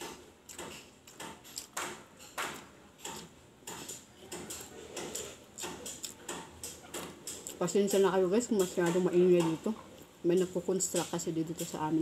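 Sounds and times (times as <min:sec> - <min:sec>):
chewing and mouth smacking: 0:00.5 - 0:01.9, 0:04.5 - 0:07.6.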